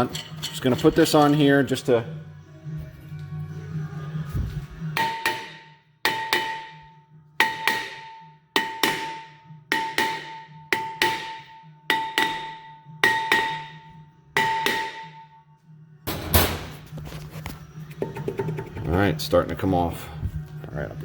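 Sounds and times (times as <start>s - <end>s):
hammer striking metal rotor: 5.0s - 15.2s, 16.1s - 16.7s.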